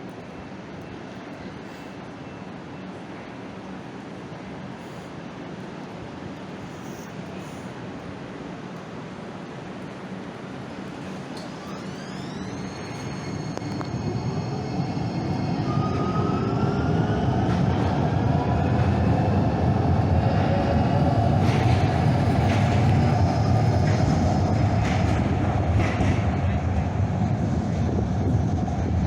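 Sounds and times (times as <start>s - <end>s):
train running rumble: 0.0s - 29.0s
train traction motor whine: 10.5s - 29.0s.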